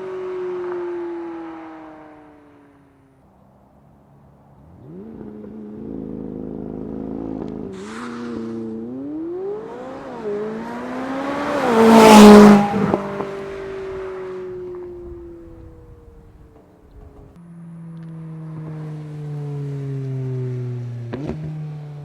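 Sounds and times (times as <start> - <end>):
sports car engine revving past: 4.6 - 22.0.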